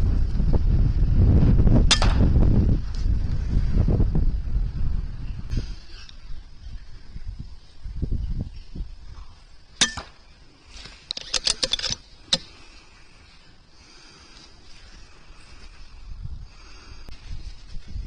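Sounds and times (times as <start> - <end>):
wind buffeting microphone: 0.0 - 9.7, 15.0 - 18.0
air rifle shot crack: 1.9 - 2.3
metallic clicks and clinks: 11.0 - 12.5.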